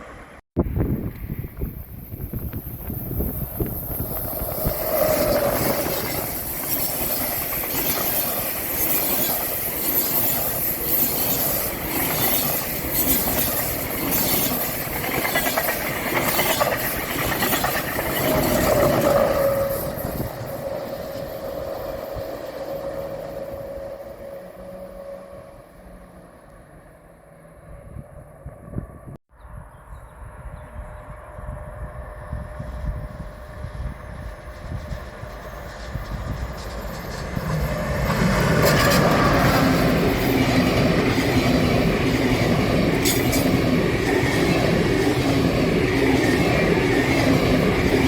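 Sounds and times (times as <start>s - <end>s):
train whine: 0.0s - 48.0s
train wheels clattering over rails: 1.6s - 22.8s, 34.2s - 48.0s.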